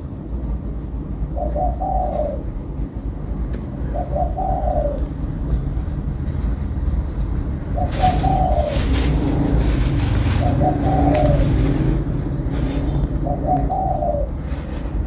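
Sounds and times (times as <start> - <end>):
steady low rumble: 0.0 - 15.0
dove cooing: 1.3 - 3.0, 3.7 - 6.4, 7.0 - 15.0.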